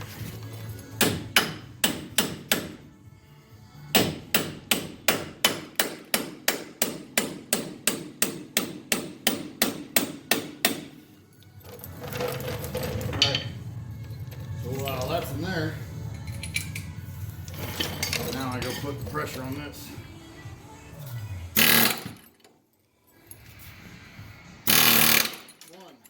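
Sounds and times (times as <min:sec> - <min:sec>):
hammer striking metal tool: 0:01.0 - 0:02.8, 0:03.9 - 0:11.0.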